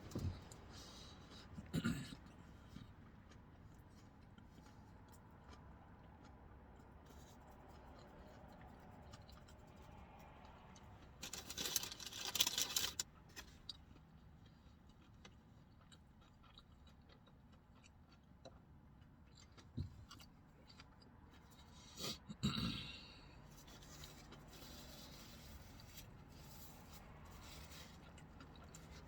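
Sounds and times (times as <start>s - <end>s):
person eating a burger: 0.0s - 29.0s
rustling: 11.2s - 13.5s.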